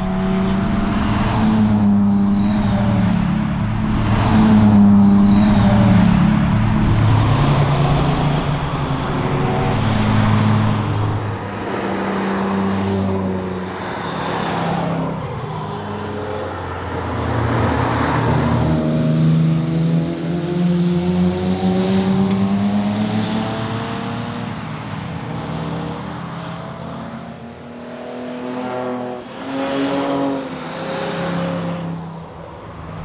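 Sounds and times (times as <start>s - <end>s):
car engine revving: 0.0s - 24.4s
road and tyre noise: 0.0s - 33.0s.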